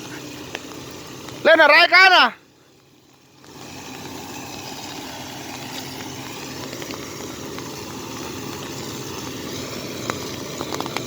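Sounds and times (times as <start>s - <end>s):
vehicle engine running low: 0.0s - 11.0s
heavy rain pouring: 3.3s - 11.0s.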